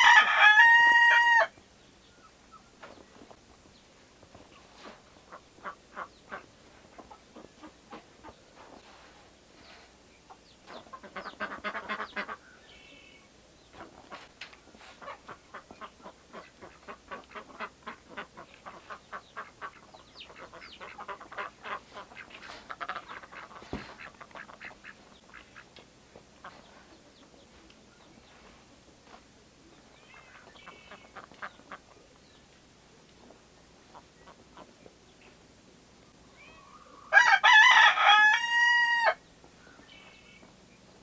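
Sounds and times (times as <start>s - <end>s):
poultry calling: 4.3s - 8.8s, 10.7s - 13.0s, 13.7s - 25.8s, 29.9s - 32.0s, 36.2s - 40.5s.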